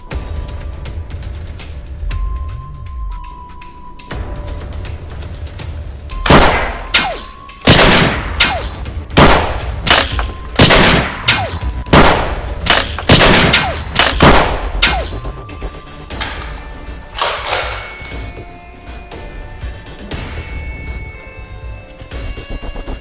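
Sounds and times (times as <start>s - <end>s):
music: 0.0s - 23.0s
gunshots: 6.3s - 15.3s, 17.2s - 18.1s.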